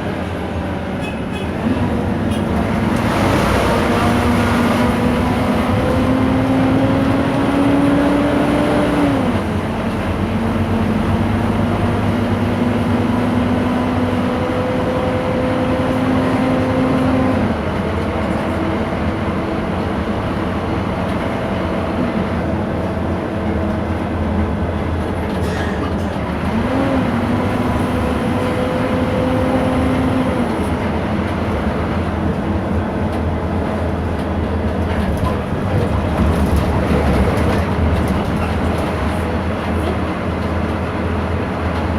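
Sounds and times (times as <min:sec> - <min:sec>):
road rumble: 0:00.0 - 0:41.9.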